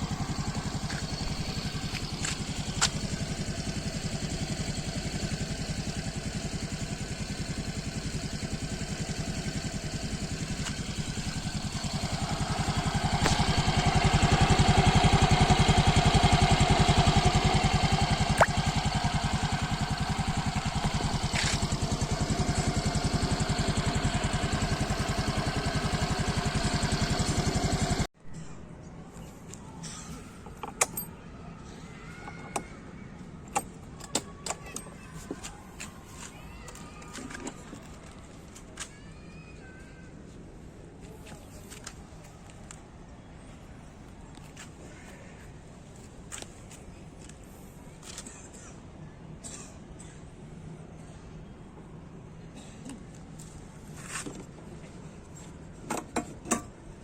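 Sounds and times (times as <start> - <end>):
scooter engine idling and revving: 0.0 - 28.2, 52.8 - 57.0.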